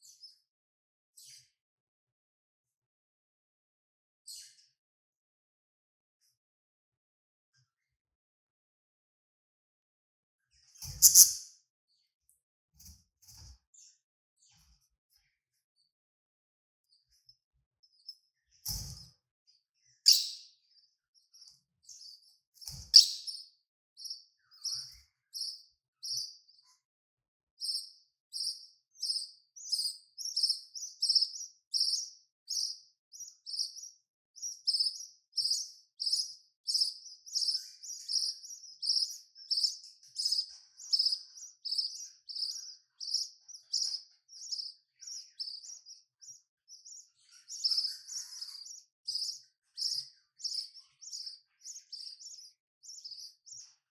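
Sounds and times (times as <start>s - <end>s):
budgerigars chirping: 10.9s - 11.4s, 20.1s - 20.4s, 23.0s - 23.4s.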